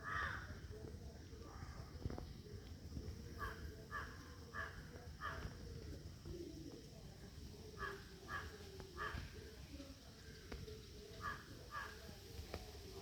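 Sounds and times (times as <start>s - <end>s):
bird calling: 7.8s - 9.6s.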